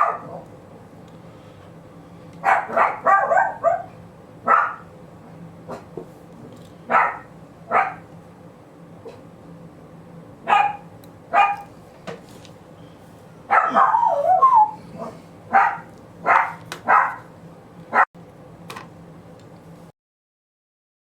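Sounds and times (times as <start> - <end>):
dog barking: 0.0 - 0.5, 2.4 - 4.9, 6.9 - 8.0, 10.4 - 11.7, 13.5 - 17.3
dog yowling: 2.5 - 3.9, 13.5 - 17.2.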